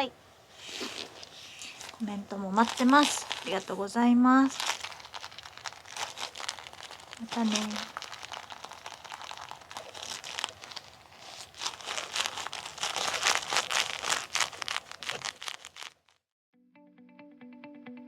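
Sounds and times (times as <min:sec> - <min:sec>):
rubber gloves rubbing together: 0:00.4 - 0:16.2
guitar music: 0:16.6 - 0:18.0.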